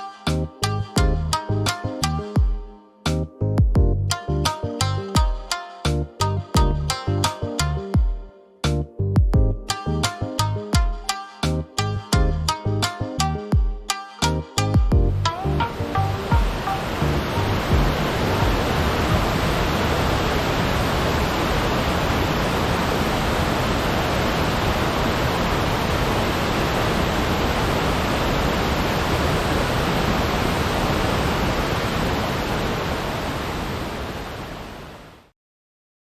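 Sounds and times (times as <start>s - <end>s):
waterfall roaring: 15.4s - 35.2s.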